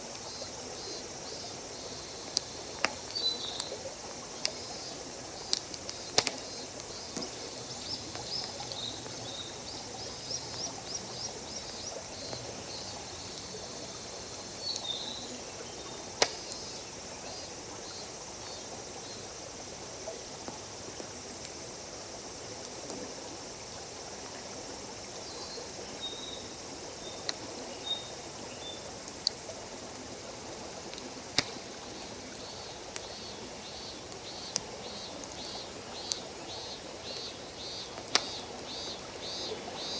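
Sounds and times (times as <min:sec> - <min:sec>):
flowing water: 0:00.0 - 0:39.9
wood fire crackling and popping: 0:05.4 - 0:09.2, 0:16.2 - 0:16.6.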